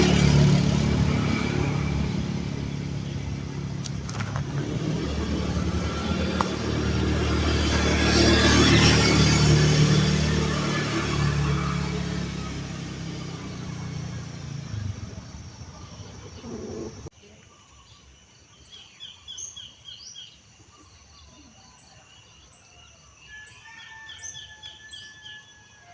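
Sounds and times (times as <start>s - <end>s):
vehicle engine rumble: 0.0s - 17.1s.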